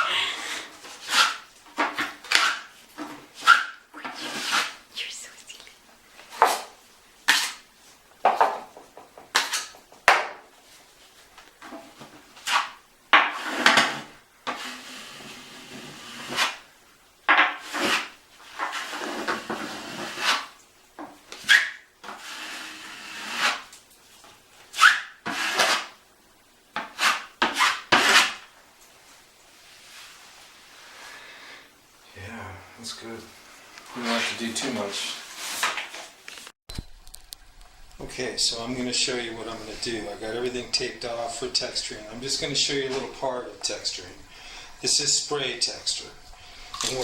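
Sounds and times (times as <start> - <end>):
drywall knife scraping: 0.4 - 4.8, 6.3 - 7.6, 9.3 - 10.3, 11.6 - 16.6, 17.3 - 20.6, 21.3 - 23.8, 24.7 - 26.0, 26.8 - 28.5, 33.9 - 36.1.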